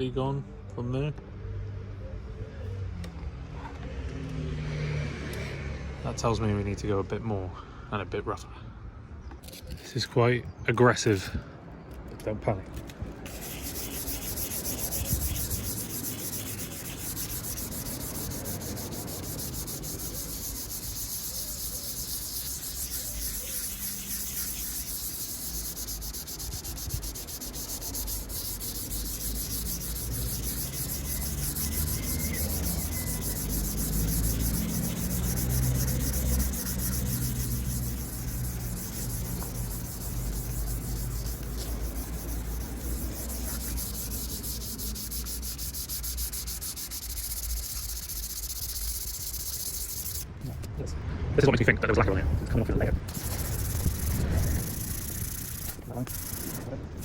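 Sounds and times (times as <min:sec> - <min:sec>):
coarse sanding of plastic: 0:13.2 - 0:50.7, 0:53.1 - 0:57.0.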